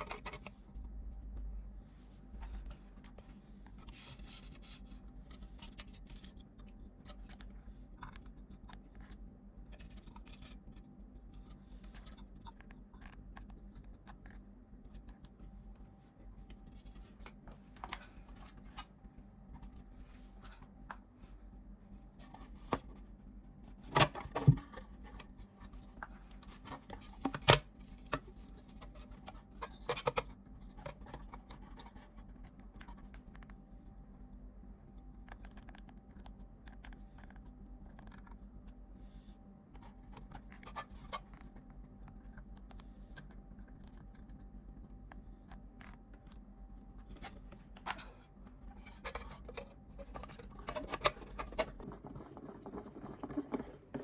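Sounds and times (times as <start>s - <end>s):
faint steady hum: 0.0s - 54.0s
light scrapes and clicks: 47.1s - 54.0s.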